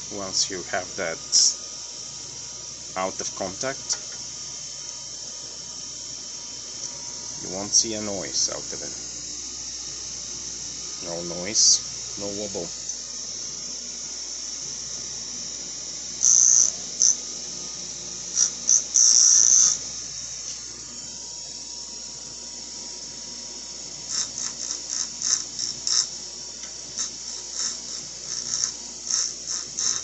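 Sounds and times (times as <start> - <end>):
bench grinder running: 0.0 - 30.0.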